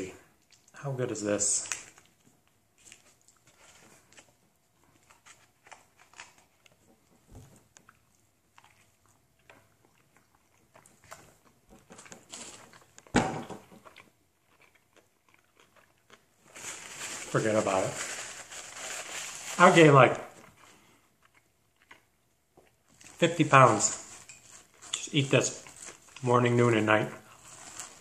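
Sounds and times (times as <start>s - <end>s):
person chewing: 1.7s - 16.5s, 20.4s - 23.2s
thump: 13.1s - 13.7s.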